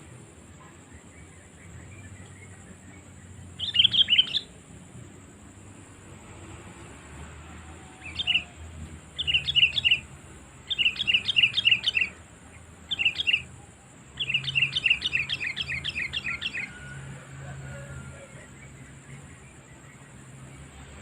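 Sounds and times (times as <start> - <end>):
bulbul chirping: 3.6 - 4.5, 9.2 - 10.1, 10.7 - 12.2, 12.9 - 13.5, 14.2 - 16.7.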